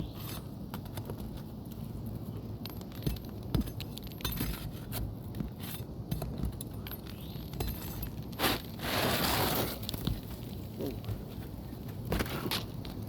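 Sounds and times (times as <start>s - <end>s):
scrape on roof: 8.4s - 10.2s.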